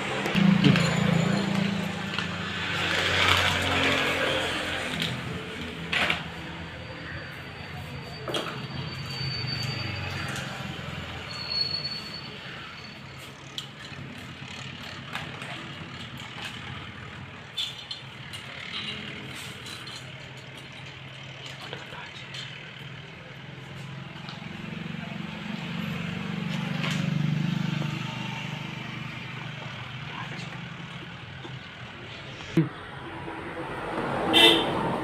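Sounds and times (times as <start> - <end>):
thin high squeak: 6.9 - 13.1.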